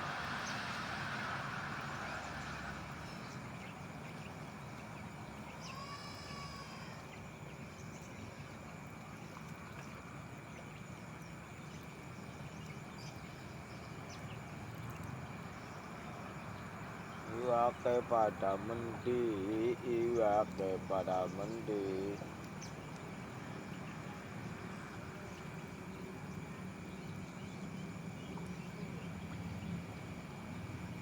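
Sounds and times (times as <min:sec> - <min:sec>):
outdoor background noise: 0:00.0 - 0:31.0
drawn-out animal call: 0:17.2 - 0:22.2.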